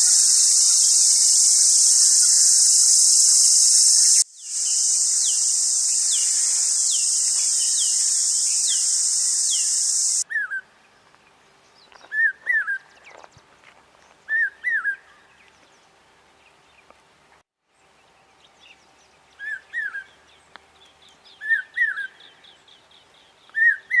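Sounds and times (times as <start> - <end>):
loud insect buzz: 0.0 - 10.2
bird shrill repeated call: 0.0 - 10.6.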